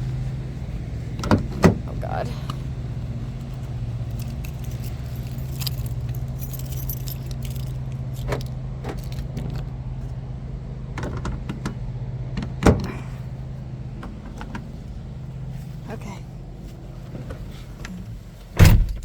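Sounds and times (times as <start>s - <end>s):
low hum: 0.0s - 19.0s
keys jangling: 3.6s - 9.7s.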